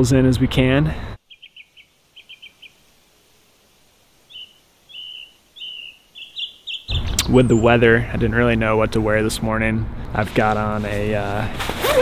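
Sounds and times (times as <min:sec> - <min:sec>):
faint outdoor background noise: 0:00.0 - 0:12.0
small bird chirping: 0:01.2 - 0:02.9, 0:04.2 - 0:07.8.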